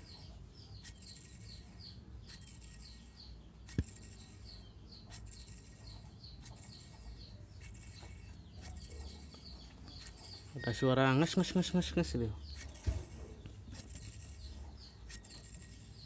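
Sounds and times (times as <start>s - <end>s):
small bird chirping: 0.0s - 16.0s.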